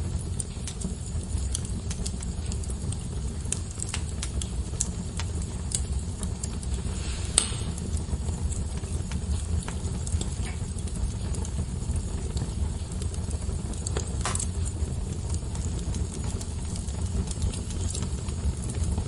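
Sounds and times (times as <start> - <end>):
fire crackling and snapping: 0.0 - 19.0
low rumble of flames: 0.0 - 19.0
loud pop with brief hiss: 6.8 - 7.9.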